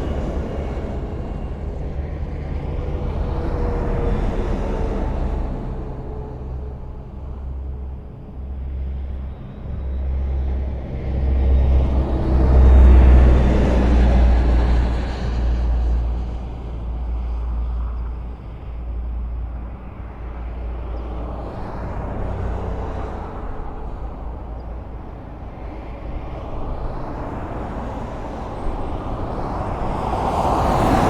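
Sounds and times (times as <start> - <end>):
highway traffic rumble: 0.0 - 31.0
vehicle passing by: 26.8 - 31.0.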